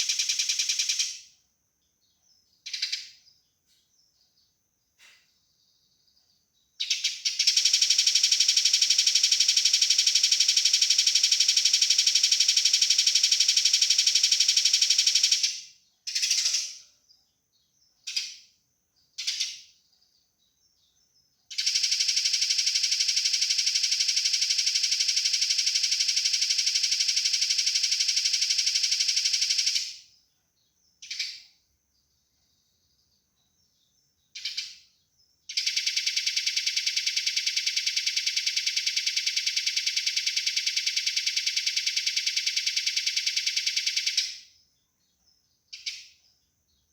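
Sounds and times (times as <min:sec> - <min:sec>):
sparrow single chirps: 0:02.1 - 0:07.9
sparrow rattling chatter: 0:06.8 - 0:16.9.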